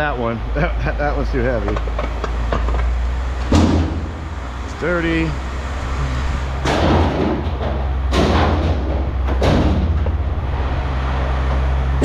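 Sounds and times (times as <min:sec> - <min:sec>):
vehicle engine idling: 0:00.0 - 0:12.0
scrap metal crashing onto pile: 0:03.5 - 0:04.3, 0:06.4 - 0:10.3.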